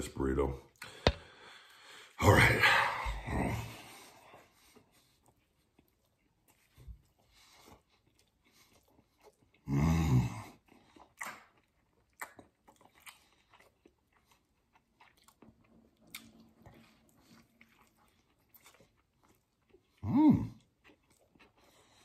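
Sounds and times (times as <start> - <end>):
man chewing food: 0.6 - 2.2, 3.0 - 22.0.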